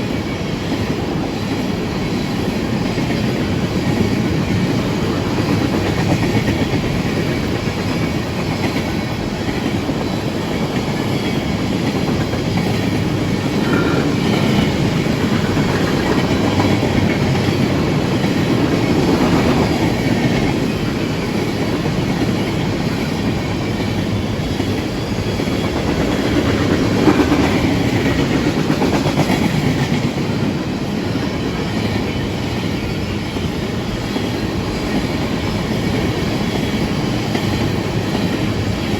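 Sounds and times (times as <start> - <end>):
train rumbling on rails: 0.0 - 38.9
wheels clacking over rail joints: 2.7 - 30.6.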